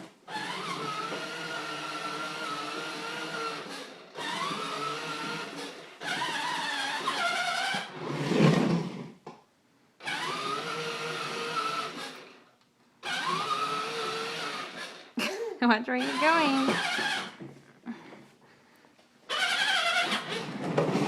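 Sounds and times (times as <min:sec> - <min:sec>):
toy truck electric motor whining: 0:00.2 - 0:09.0, 0:10.0 - 0:15.1, 0:16.0 - 0:17.4, 0:19.3 - 0:21.0.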